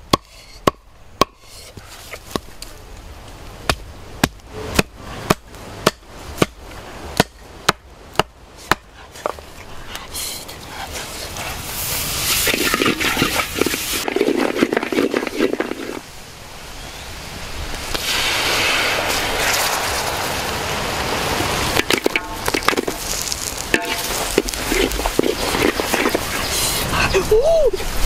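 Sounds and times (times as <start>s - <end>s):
wood fire crackling: 17.7s - 26.6s.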